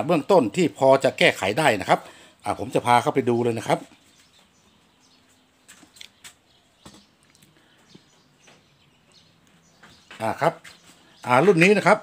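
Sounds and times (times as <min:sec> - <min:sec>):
bird chirps: 0:02.6 - 0:12.0.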